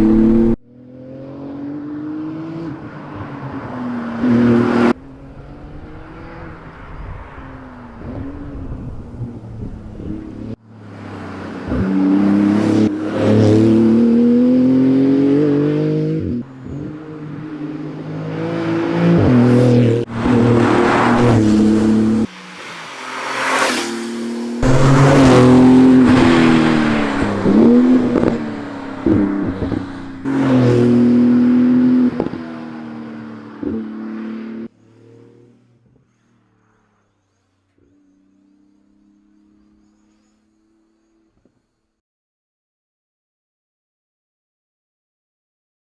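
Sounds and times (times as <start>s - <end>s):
car engine revving hard: 0.0s - 2.8s, 11.6s - 32.4s.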